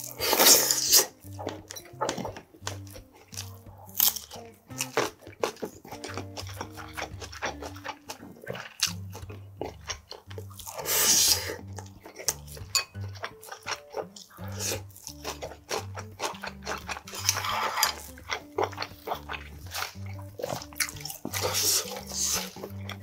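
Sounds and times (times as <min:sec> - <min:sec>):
background music with low bass: 0:00.0 - 0:23.0
chewing and crunching food: 0:00.0 - 0:23.0.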